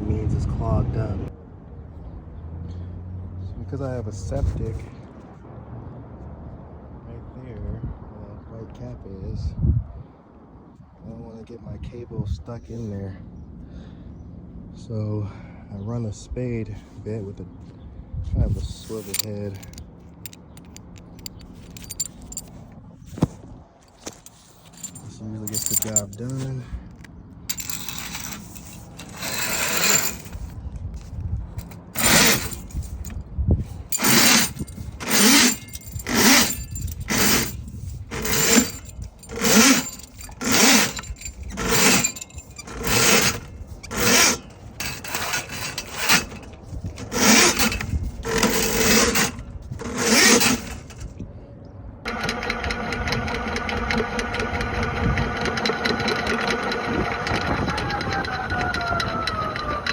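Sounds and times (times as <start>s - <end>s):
steady motor hum: 52.1s - 59.9s.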